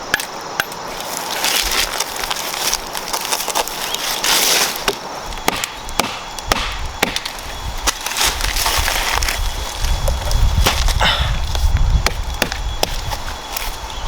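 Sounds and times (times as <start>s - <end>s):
sticks and branches snapping: 0.0s - 13.8s.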